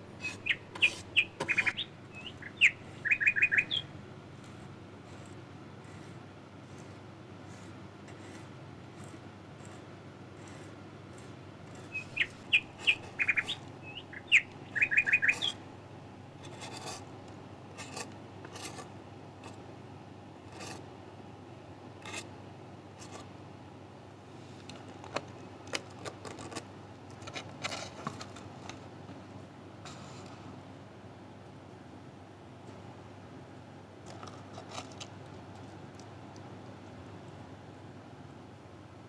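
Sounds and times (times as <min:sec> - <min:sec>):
bird chirping: 0:00.2 - 0:04.0, 0:11.8 - 0:15.6.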